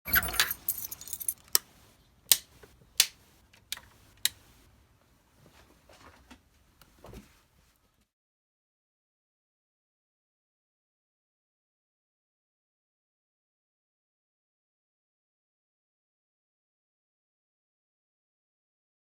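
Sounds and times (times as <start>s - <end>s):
sharp clicks: 2.3s - 4.4s.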